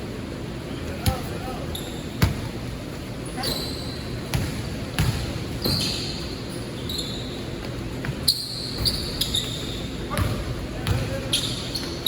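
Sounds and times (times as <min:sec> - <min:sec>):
rumble of large hall: 0:00.0 - 0:12.0
sneaker squeaks: 0:00.7 - 0:02.6, 0:03.2 - 0:12.0
basketball bouncing on court: 0:00.9 - 0:02.6, 0:04.2 - 0:06.2, 0:07.6 - 0:12.0.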